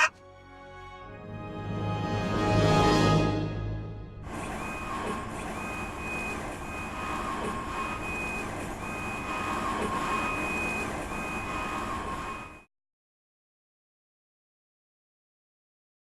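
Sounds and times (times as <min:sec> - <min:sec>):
printer mechanical hum: 0:04.2 - 0:12.7
print head high whine: 0:04.3 - 0:12.6.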